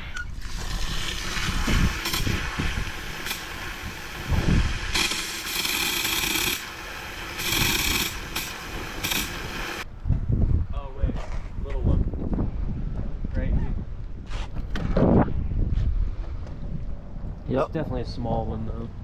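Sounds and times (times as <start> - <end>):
water spraying hiss: 0.4 - 9.8.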